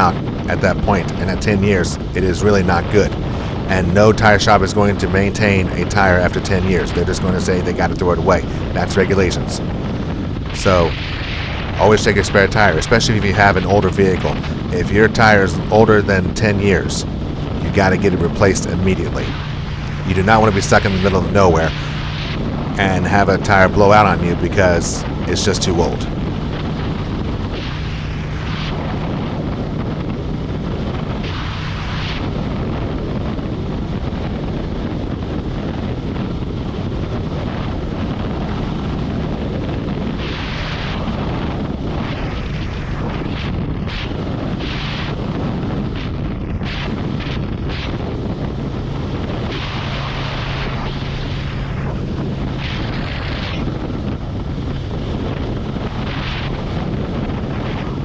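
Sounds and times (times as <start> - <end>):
motorcycle engine drone: 0.0 - 27.5, 48.6 - 56.6
wind rush on microphone: 0.0 - 58.0.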